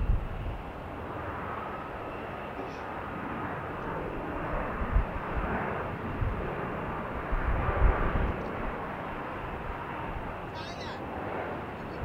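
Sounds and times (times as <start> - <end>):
wind buffeting microphone: 0.0 - 1.7, 3.0 - 10.5
jet engines rushing: 0.0 - 12.0.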